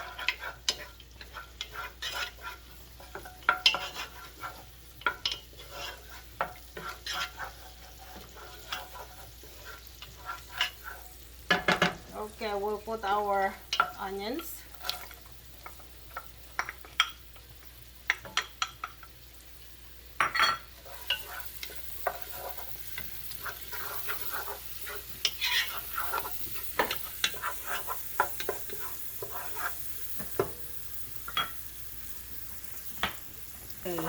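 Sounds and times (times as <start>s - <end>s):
utensil scraping a pan: 0.0s - 15.2s, 20.8s - 30.6s
onions frying in oil: 0.0s - 34.0s.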